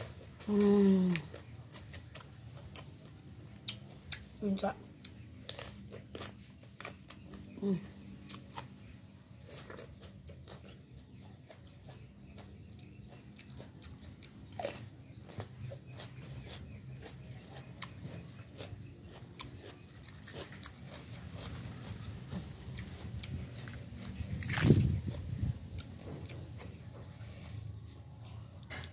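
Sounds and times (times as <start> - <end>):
person chewing food: 0.0 - 4.4, 5.0 - 28.9.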